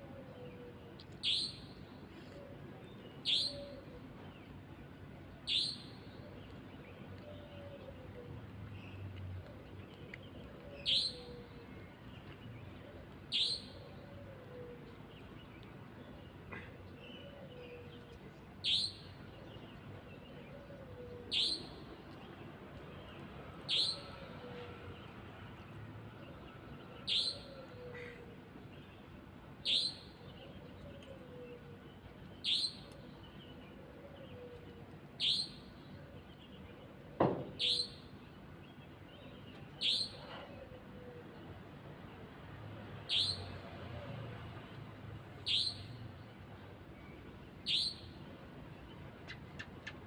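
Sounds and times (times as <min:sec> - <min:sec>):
sharp high-pitched bird call: 0:27.1 - 0:27.5, 0:43.1 - 0:43.4, 0:45.5 - 0:45.9, 0:47.7 - 0:48.0.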